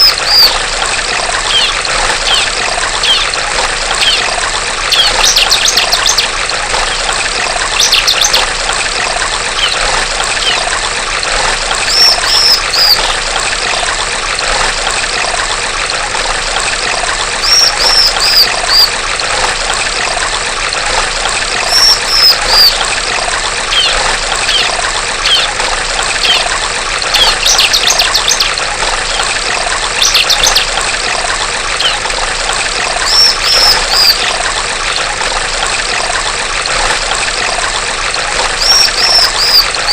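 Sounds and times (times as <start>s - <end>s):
bird chirping and trilling: 0.0s - 0.6s, 1.5s - 7.1s, 7.7s - 8.5s, 9.6s - 10.7s, 11.8s - 13.2s, 17.4s - 18.9s, 21.6s - 22.8s, 23.7s - 25.6s, 26.2s - 26.5s, 27.1s - 29.3s, 30.0s - 30.7s, 31.8s - 32.0s, 33.0s - 34.4s, 38.6s - 39.9s
running water trickling: 0.0s - 39.9s.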